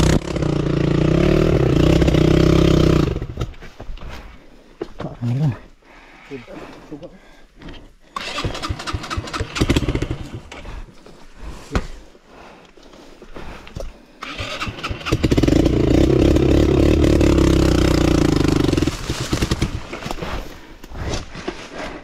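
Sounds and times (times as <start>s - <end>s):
motorcycle engine cranking: 8.2s - 10.6s, 14.2s - 19.8s.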